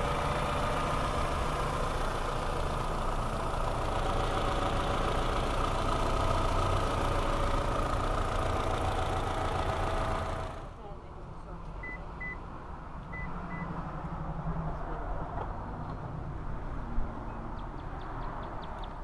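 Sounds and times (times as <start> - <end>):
car engine idling with whine: 0.0 - 12.4.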